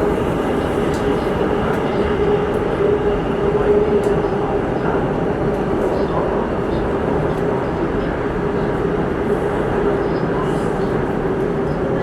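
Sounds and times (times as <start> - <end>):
underground train rumble: 0.0 - 12.0.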